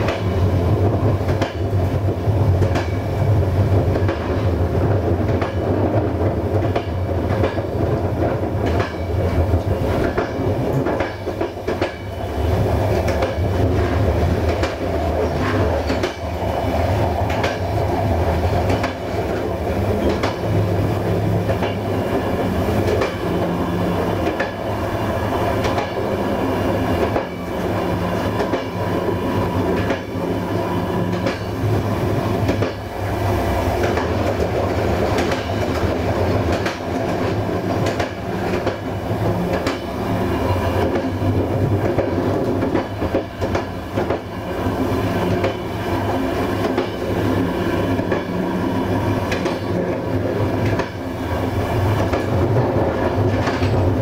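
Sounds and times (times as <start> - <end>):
train rumble and hum: 0.0 - 54.0
wheels clicking over rail joints: 1.1 - 12.1, 12.9 - 24.7, 25.4 - 28.9, 29.7 - 30.3, 32.4 - 32.9, 33.8 - 40.0.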